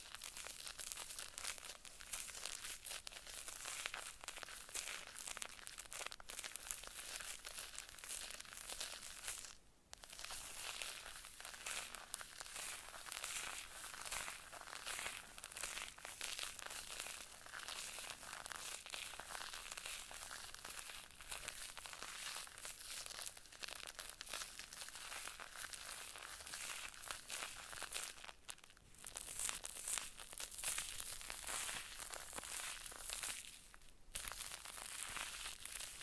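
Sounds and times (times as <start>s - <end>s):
close crinkling and crackling: 0.0s - 36.0s.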